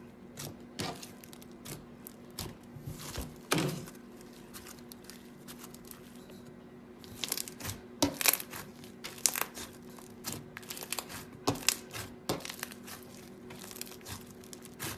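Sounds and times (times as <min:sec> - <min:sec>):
slime crackling and popping: 0:07.0 - 0:14.9.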